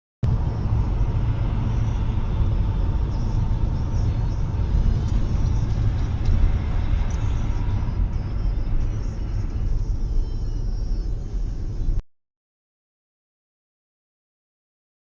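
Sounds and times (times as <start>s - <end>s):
car driving rumble: 0.2s - 12.0s.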